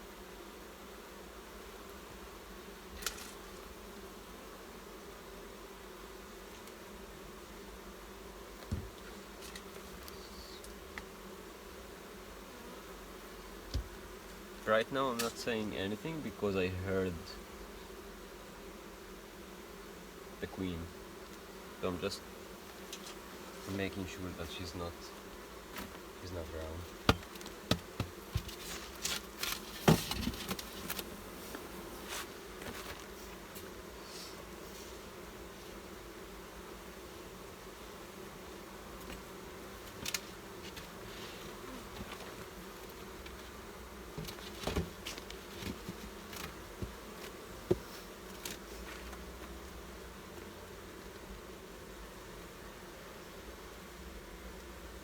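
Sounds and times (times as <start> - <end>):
honeybees buzzing: 0.0 - 55.0
sharp knocks and taps: 27.1 - 28.5.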